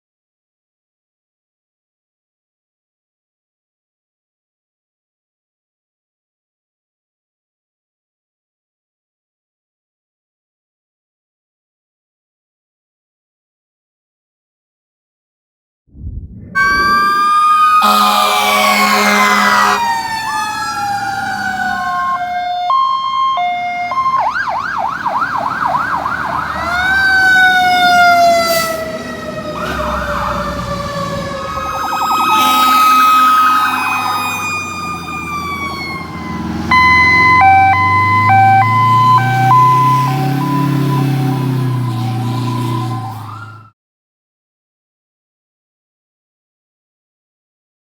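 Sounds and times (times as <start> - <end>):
electronic sirens wailing: 16.5 - 43.7
air horn blasts: 16.6 - 20.2, 31.9 - 34.5.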